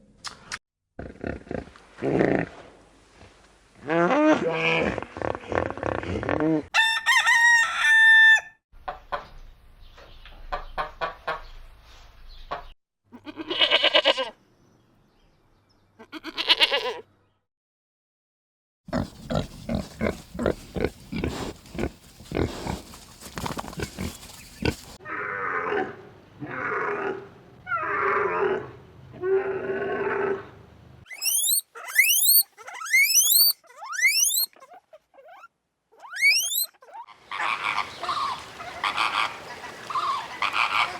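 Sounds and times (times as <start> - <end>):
farm animal calls: 18.9 - 25.8, 31.1 - 40.9
high rising chirps: 31.1 - 34.5, 36.1 - 36.7.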